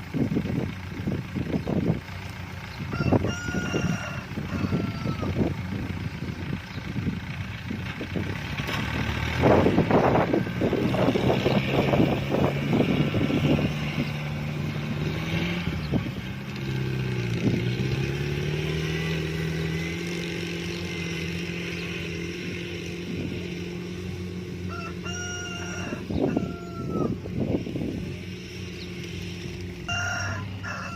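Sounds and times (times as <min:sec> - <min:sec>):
combine harvester diesel engine: 0:00.0 - 0:30.9
rooster crowing: 0:02.9 - 0:05.6, 0:24.4 - 0:27.6, 0:29.8 - 0:30.9
rattling clatter: 0:05.4 - 0:15.3.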